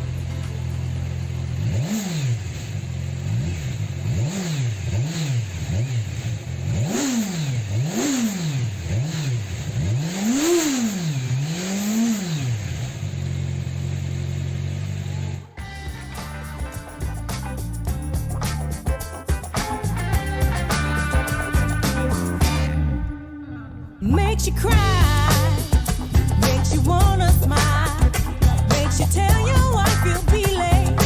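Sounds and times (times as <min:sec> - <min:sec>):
engine revving in throttle blips: 0:00.0 - 0:18.8
motorcycle engine idling: 0:00.0 - 0:23.0, 0:24.6 - 0:31.0.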